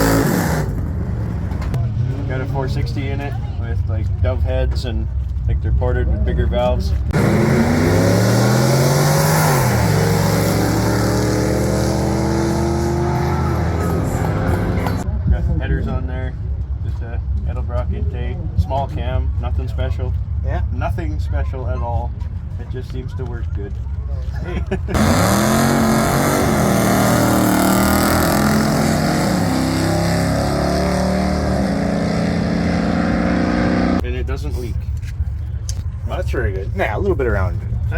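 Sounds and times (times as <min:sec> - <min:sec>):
pickup engine accelerating hard: 0:00.0 - 0:03.0, 0:07.1 - 0:15.0, 0:24.9 - 0:34.0.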